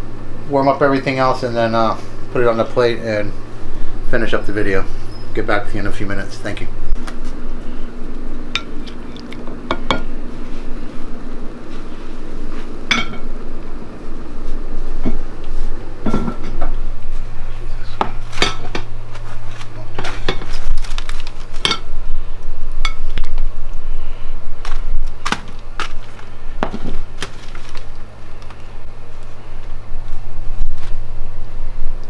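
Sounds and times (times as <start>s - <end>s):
steady low hum: 0.0s - 32.0s
dishes and cutlery clattering: 12.9s - 13.3s.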